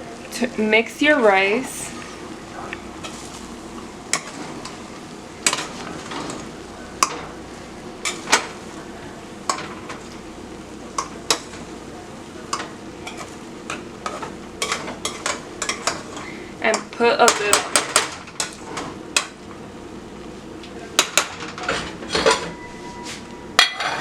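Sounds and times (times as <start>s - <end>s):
utensil stirring rice in a pot: 3.0s - 19.4s.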